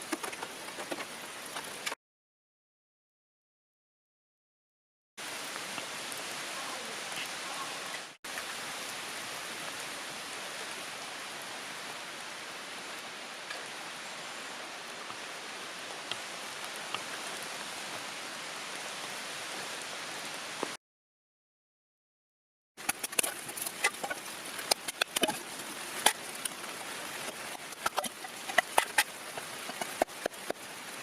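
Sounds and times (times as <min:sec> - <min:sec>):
steady rain hiss: 0:00.0 - 0:02.0, 0:05.2 - 0:20.8, 0:22.8 - 0:31.0
raindrop ticks: 0:22.8 - 0:31.0.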